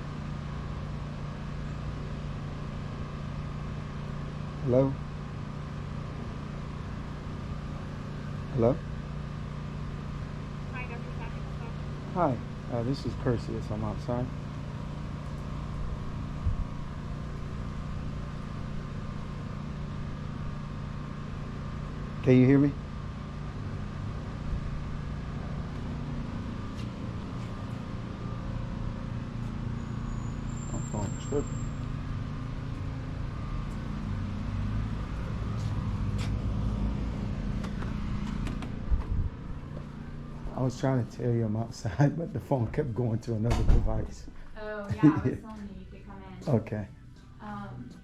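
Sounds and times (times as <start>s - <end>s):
low thump: 43.5s - 44.2s.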